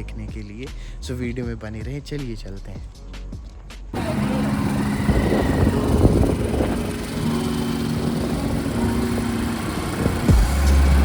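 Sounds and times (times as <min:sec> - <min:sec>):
vehicle engine running: 0:04.0 - 0:11.0.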